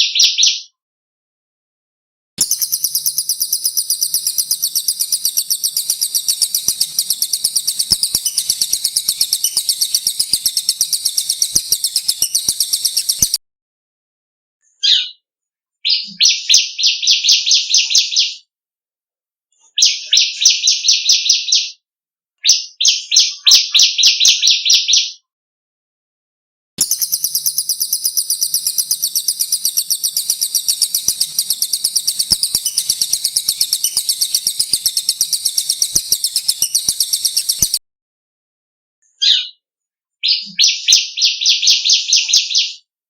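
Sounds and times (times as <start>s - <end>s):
bird chattering notes: 2.4s - 13.4s, 26.8s - 37.8s
songbird fast trill: 2.4s - 13.4s, 26.8s - 37.8s.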